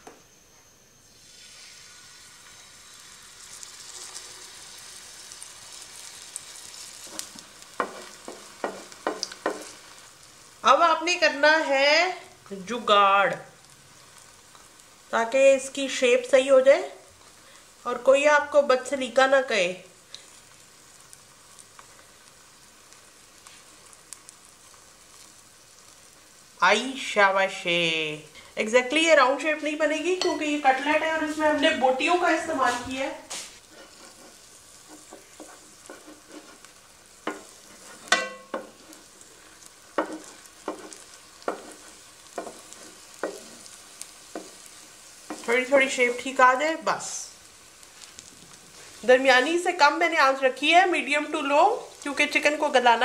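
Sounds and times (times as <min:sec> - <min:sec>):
food sizzling in hot oil: 0:01.0 - 0:53.0
spatula knocking and scraping pan: 0:07.0 - 0:09.8, 0:30.1 - 0:31.4, 0:33.7 - 0:39.1, 0:39.9 - 0:45.7.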